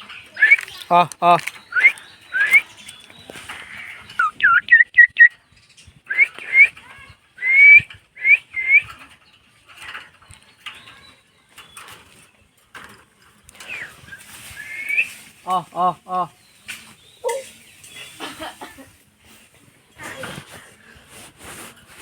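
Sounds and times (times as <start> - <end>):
myna whistling: 0.3 - 0.8, 1.5 - 2.8, 4.2 - 5.4, 6.1 - 6.8, 7.4 - 9.0, 13.6 - 15.2.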